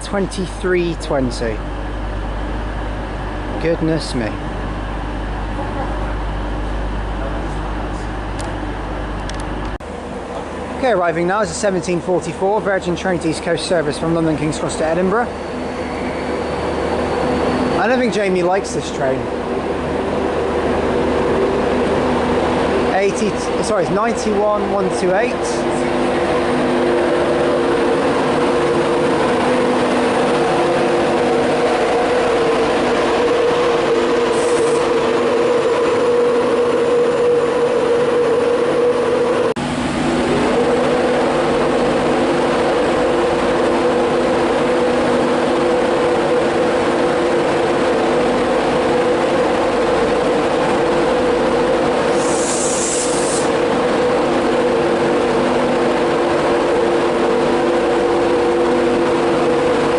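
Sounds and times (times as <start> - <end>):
electric locomotive humming: 0.0 - 59.9
short hisses: 52.1 - 53.5.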